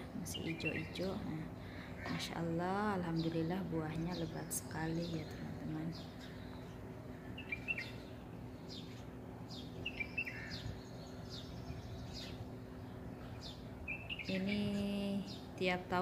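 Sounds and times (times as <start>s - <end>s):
small birds chirping: 0.0s - 16.0s
steady low hum: 0.0s - 16.0s
bird twittering calls: 3.1s - 15.7s.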